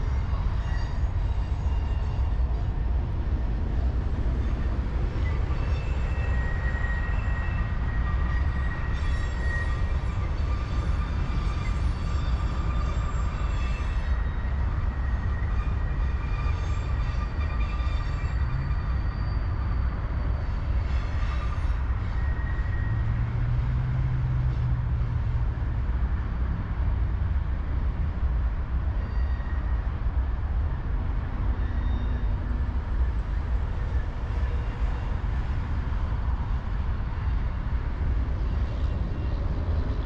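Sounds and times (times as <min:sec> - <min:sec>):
high-pitched wheel squeals: 0:00.0 - 0:24.7, 0:28.9 - 0:30.2, 0:31.2 - 0:36.5
freight train rumbling by: 0:00.0 - 0:40.0.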